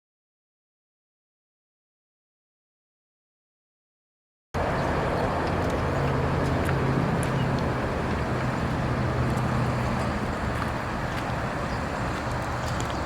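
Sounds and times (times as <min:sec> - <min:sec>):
diesel truck engine idling: 0:04.6 - 0:13.0.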